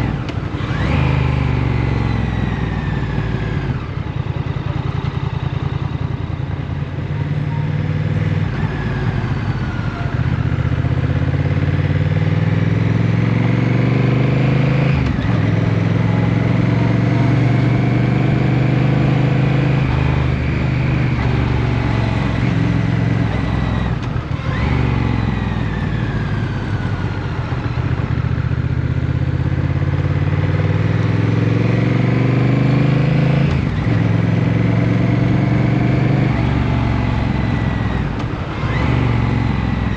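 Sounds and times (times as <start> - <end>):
motorcycle engine changing gear: 7.6 - 39.9.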